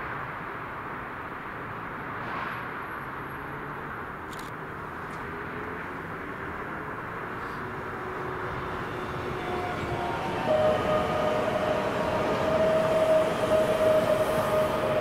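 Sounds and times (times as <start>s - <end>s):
train rumble: 7.1s - 15.0s
steady high-pitched tone: 8.5s - 15.0s.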